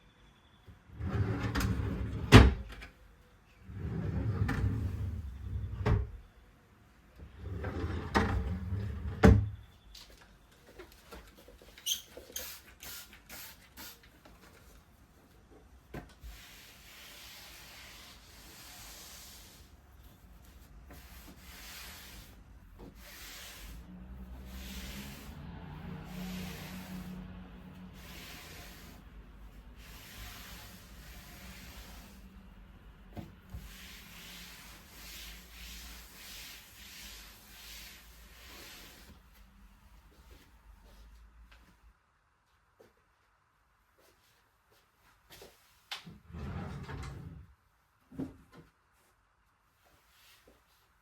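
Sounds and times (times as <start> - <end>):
wardrobe door sliding: 0.9 - 2.6, 3.7 - 6.2, 7.4 - 9.6, 46.2 - 47.5.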